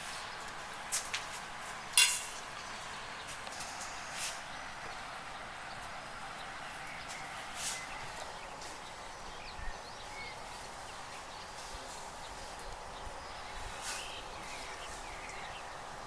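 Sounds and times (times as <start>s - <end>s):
steady hiss: 0.0s - 16.0s
faint bird chirps: 6.8s - 15.9s.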